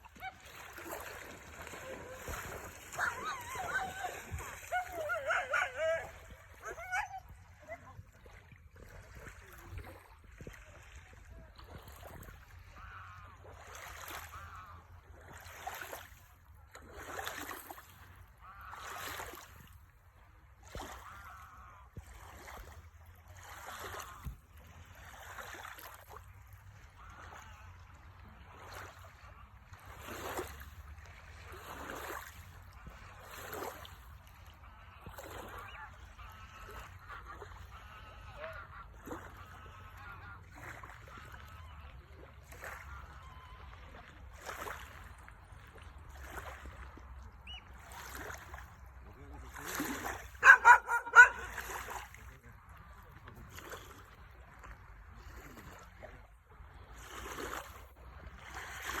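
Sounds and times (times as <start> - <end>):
sea waves washing ashore: 0.0 - 7.9.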